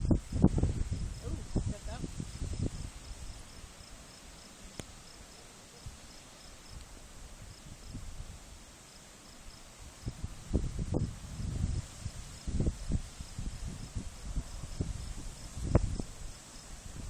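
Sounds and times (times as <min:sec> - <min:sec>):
wind buffeting microphone: 0:00.0 - 0:04.1, 0:06.7 - 0:08.6, 0:09.7 - 0:17.0
crickets chirping: 0:00.0 - 0:17.0.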